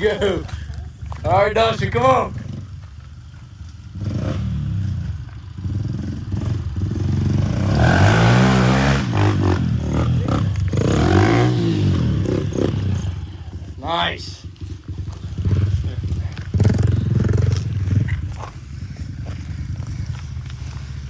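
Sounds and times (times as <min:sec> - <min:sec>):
motorbike engine revving: 0:00.0 - 0:21.0.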